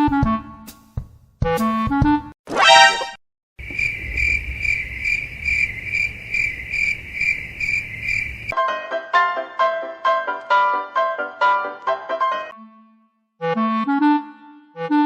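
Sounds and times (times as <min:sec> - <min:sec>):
cricket chirping: 0:03.6 - 0:08.6
piano music: 0:08.6 - 0:12.5.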